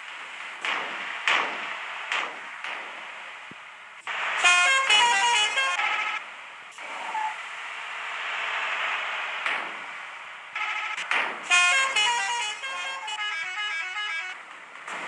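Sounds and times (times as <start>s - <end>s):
moving vehicle rushing noise: 0.0s - 15.0s
bus musical horn tune: 4.3s - 6.2s, 10.6s - 14.4s.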